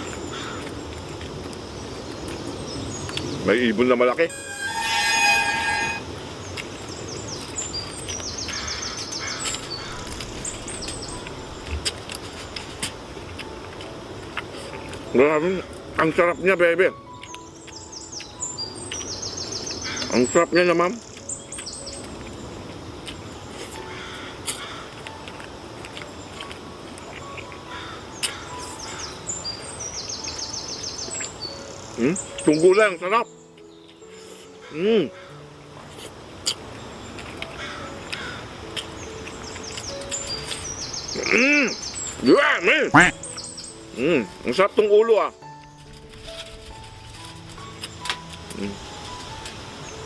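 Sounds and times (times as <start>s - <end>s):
birds chirping: 0.0s - 35.7s, 36.7s - 50.0s
outdoor background noise: 0.0s - 50.0s.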